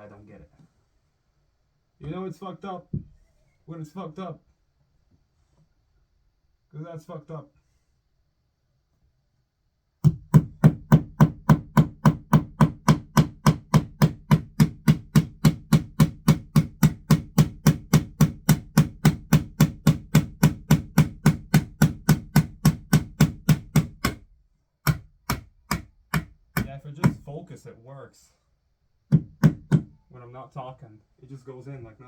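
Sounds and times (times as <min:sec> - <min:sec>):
hammer driving a nail: 0:10.0 - 0:27.3, 0:29.1 - 0:30.0.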